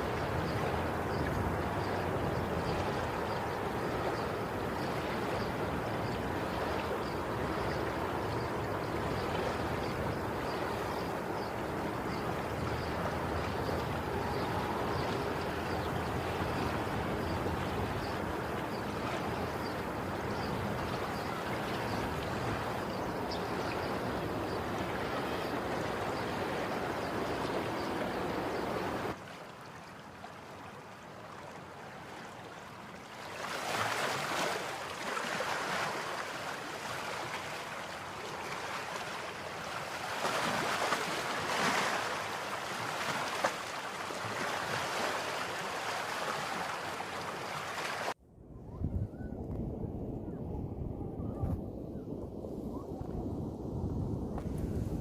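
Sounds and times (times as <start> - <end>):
sea surf rushing: 0.0 - 29.2, 33.2 - 48.2
wind buffeting microphone: 0.0 - 29.2, 48.2 - 55.0
waves washing in: 0.0 - 48.2.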